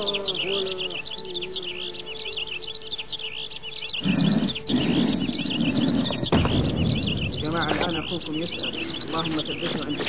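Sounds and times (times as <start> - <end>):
birds chirping rapidly: 0.0 - 10.0.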